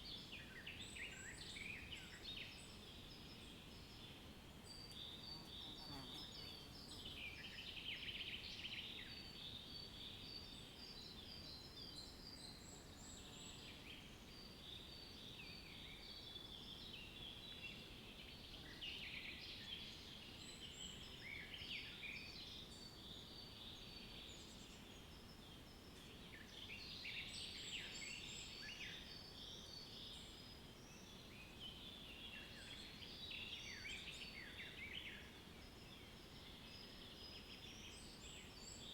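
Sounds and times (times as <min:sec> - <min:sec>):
low steady hiss: 0:00.0 - 0:38.9.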